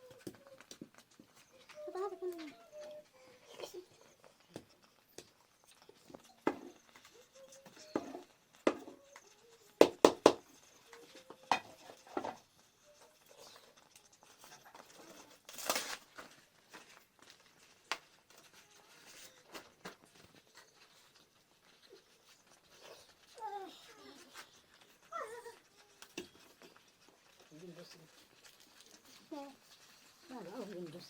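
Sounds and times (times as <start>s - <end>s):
pots and utensils clattering: 11.2s - 12.5s.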